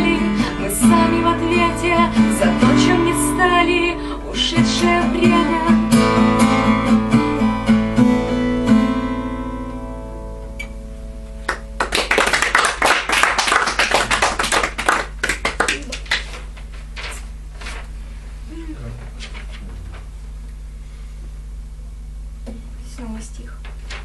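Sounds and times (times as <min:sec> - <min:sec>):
acoustic guitar strumming chords: 0:00.0 - 0:11.9
audience applauding: 0:11.4 - 0:16.5.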